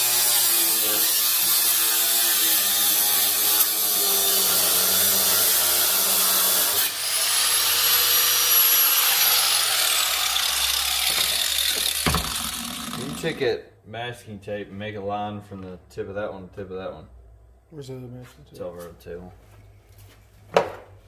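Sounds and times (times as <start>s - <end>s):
power tools cutting metal: 0.0s - 13.4s.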